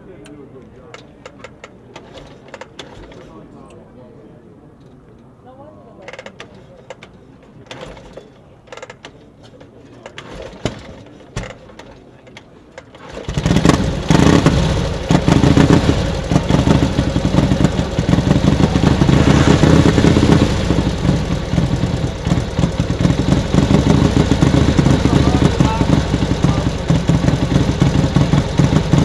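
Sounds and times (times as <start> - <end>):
motorcycle engine running: 12.9 - 29.0.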